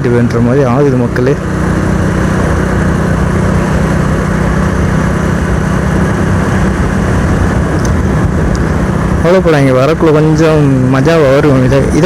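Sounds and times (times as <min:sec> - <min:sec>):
motorcycle engine running: 0:00.0 - 0:12.0
wind noise on microphone: 0:01.8 - 0:09.8.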